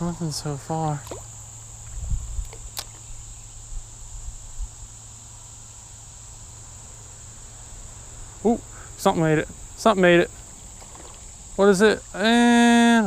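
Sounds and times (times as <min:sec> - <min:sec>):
high-pitched insect chirring: 0:00.0 - 0:13.0
sharp click: 0:02.4 - 0:03.0.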